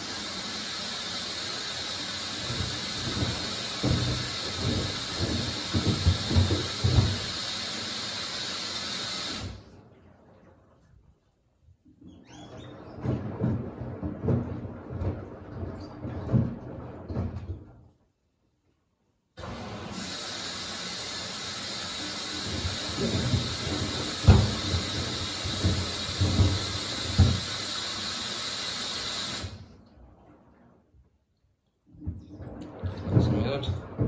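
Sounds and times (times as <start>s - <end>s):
washer taking in water hiss: 0.0s - 9.9s, 19.4s - 29.9s
dull thumps of sneakers in drum: 3.1s - 7.4s.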